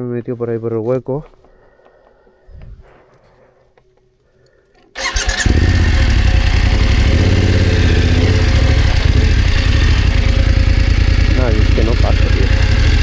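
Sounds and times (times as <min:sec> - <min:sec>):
electric starter cranking: 0:04.9 - 0:13.0
motorcycle engine idling: 0:05.0 - 0:13.0.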